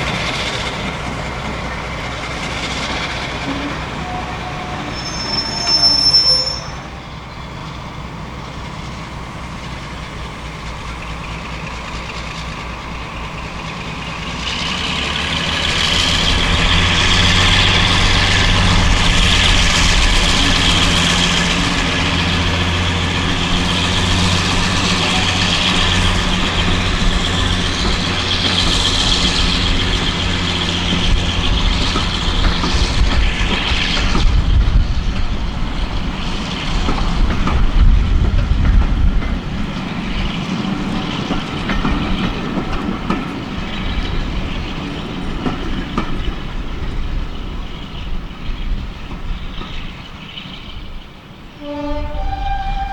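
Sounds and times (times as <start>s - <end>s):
train running on rails: 0.0s - 52.9s
high wheel squeal: 2.9s - 7.7s, 15.6s - 33.9s, 51.5s - 52.9s
brief shrill sound: 4.1s - 7.0s, 51.6s - 52.9s
low engine note: 6.9s - 35.9s, 51.6s - 52.9s.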